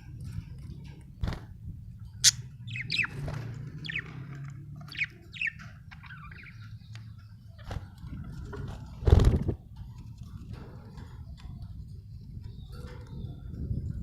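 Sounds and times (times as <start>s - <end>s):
budgerigar chirping: 2.2s - 3.2s, 3.8s - 4.2s, 4.9s - 6.6s.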